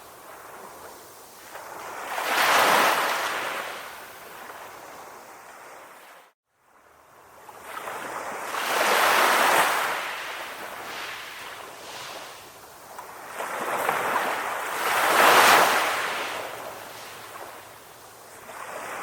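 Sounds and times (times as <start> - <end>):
ocean waves breaking: 0.0 - 6.4, 7.6 - 19.0.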